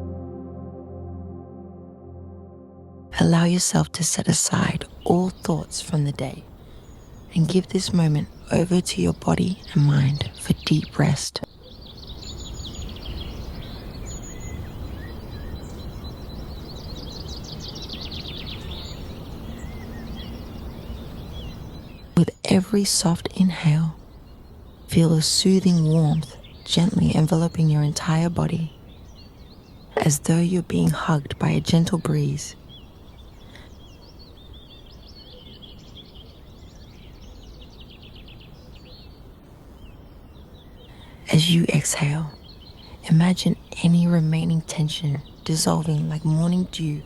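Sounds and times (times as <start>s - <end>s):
low background rumble: 0.0s - 35.2s
low outdoor ambience: 0.0s - 47.0s
songbirds chirping: 3.1s - 47.0s.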